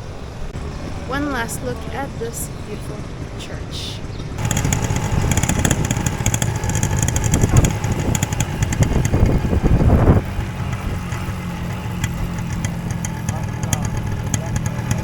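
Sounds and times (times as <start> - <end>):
motorcycle engine running: 4.0 - 15.0.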